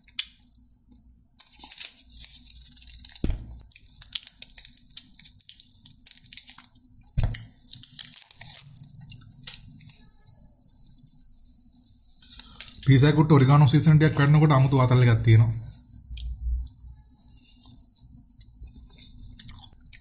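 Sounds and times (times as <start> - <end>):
chewing crunchy food: 15.9 - 20.0.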